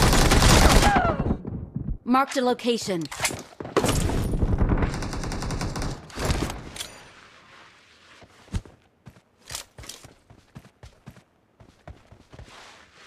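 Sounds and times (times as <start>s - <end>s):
video game automatic gunfire: 0.0s - 0.8s, 4.5s - 6.0s.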